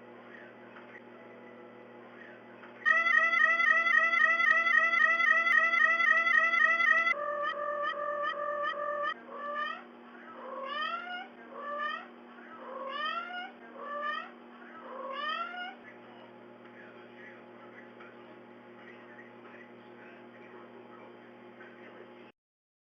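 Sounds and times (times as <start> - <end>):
cat meowing: 14.9 - 15.8.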